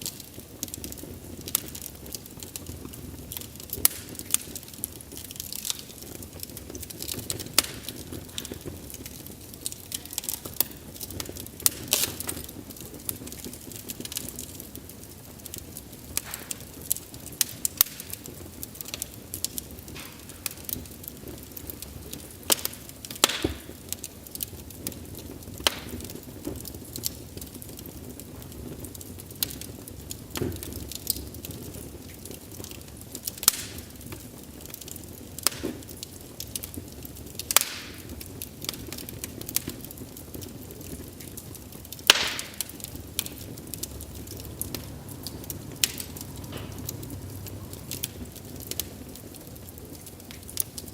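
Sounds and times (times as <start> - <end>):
low hiss of burning: 0.0 - 50.9
wood fire crackling: 0.0 - 50.9.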